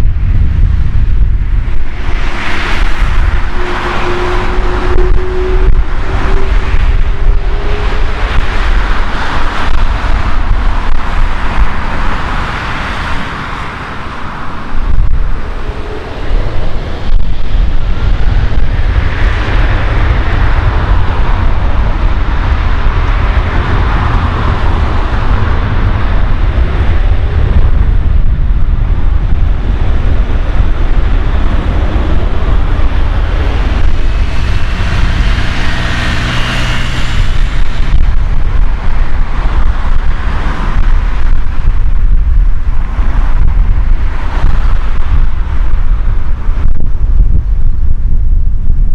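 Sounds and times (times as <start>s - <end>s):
jet engines roaring: 0.0s - 46.6s
faint whining tones: 3.4s - 9.8s.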